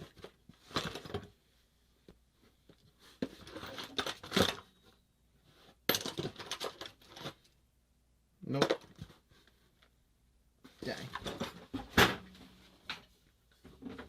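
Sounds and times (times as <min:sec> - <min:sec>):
loose parts clattering: 0:03.2 - 0:04.7, 0:05.9 - 0:07.5.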